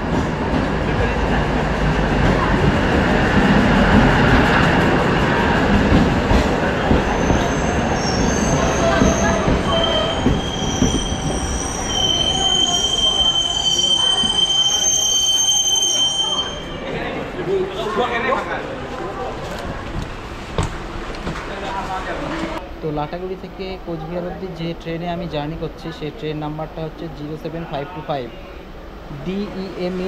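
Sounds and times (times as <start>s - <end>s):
train engine and wheels rumbling: 0.0s - 30.0s
train brakes squealing: 7.0s - 16.9s.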